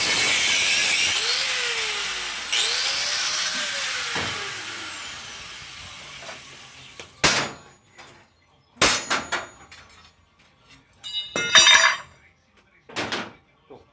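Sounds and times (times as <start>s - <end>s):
power tool spinning down: 0.0s - 7.0s
ringing clank of steel: 11.0s - 12.1s.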